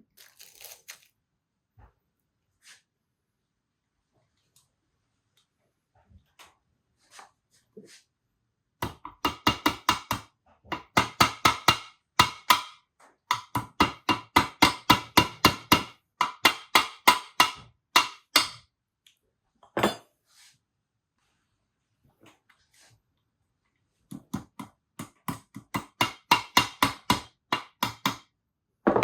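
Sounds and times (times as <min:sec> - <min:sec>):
hammer tapping metal: 0:08.8 - 0:18.6, 0:24.1 - 0:28.2.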